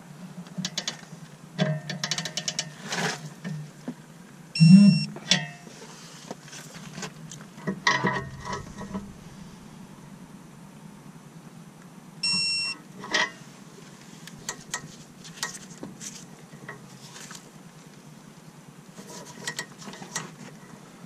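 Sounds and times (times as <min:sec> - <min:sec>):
short electronic beep: 0:04.6 - 0:05.2, 0:12.2 - 0:12.8.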